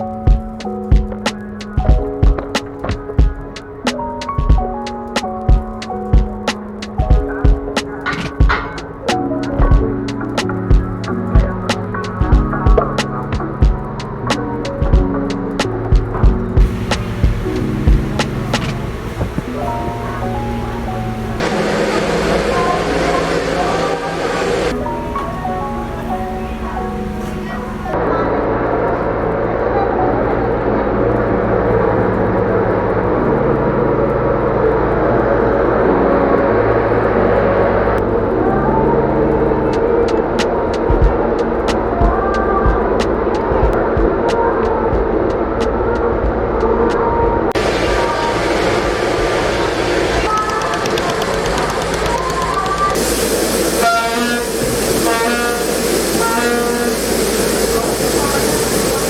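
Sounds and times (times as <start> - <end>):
rushing noise: 0.0 - 29.7, 34.6 - 59.0
horn tooting: 50.2 - 58.6.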